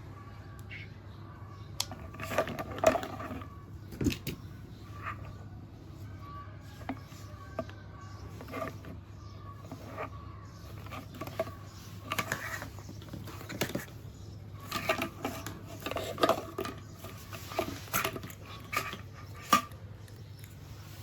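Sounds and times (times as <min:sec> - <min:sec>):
small hard objects clattering: 0:01.8 - 0:04.4, 0:14.6 - 0:21.0.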